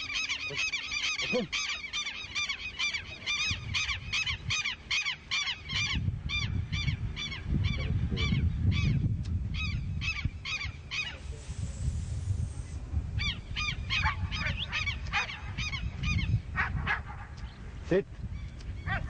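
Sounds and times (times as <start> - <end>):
bird calling short arched cries: 0.0 - 6.0, 13.2 - 16.3
hiss: 11.1 - 12.9.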